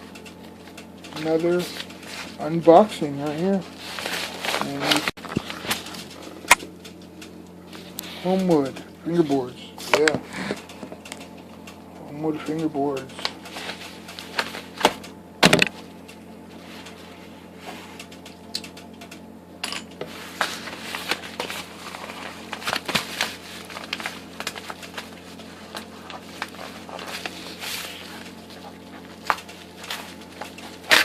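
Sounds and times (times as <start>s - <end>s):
packaging crinkling: 20.3s - 31.0s.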